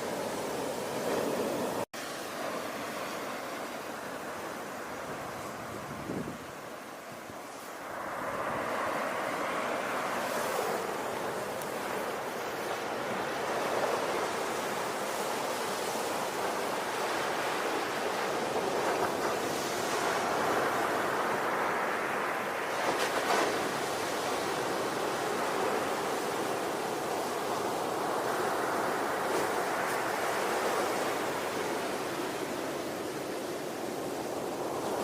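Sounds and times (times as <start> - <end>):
ocean surf rushing: 0.0 - 35.0.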